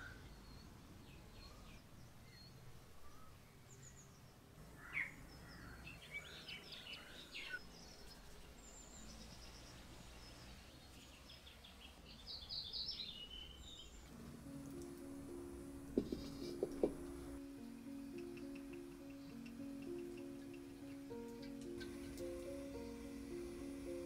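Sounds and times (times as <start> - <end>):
birds chirping faintly: 0.0 - 24.0
low outdoor background rumble: 13.8 - 24.0.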